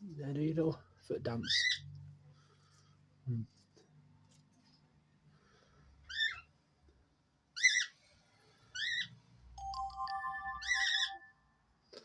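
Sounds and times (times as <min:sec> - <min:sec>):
high-pitched bird chirps: 0:08.8 - 0:11.5.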